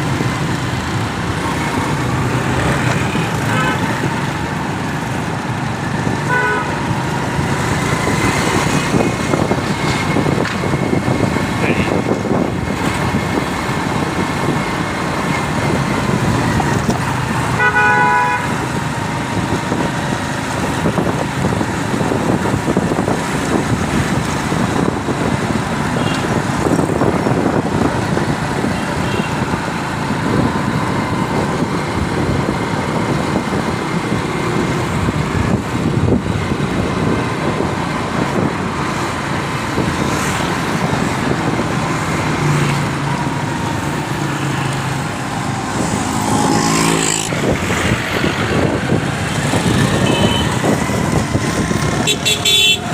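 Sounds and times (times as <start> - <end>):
road traffic noise: 0.0 - 52.9
vehicle horn honking: 6.3 - 6.8, 17.5 - 18.6, 50.0 - 50.6, 52.0 - 52.9.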